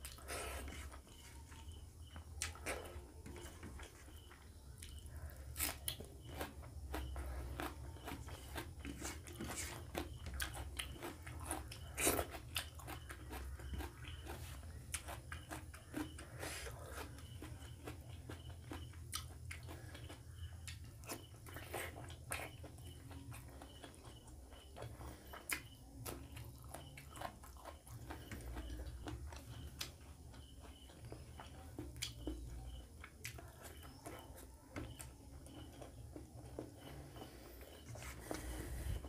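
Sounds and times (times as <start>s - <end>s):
person chewing with wet mouth sounds: 0.0s - 39.0s.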